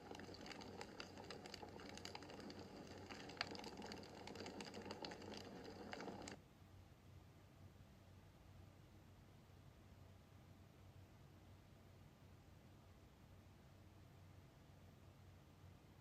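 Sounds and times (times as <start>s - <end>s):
wood fire crackling: 0.0s - 6.4s
soft hiss: 0.0s - 16.0s.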